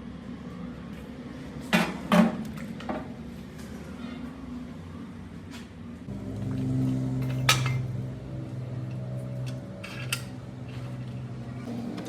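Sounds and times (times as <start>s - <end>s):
machine hum: 6.1s - 9.5s.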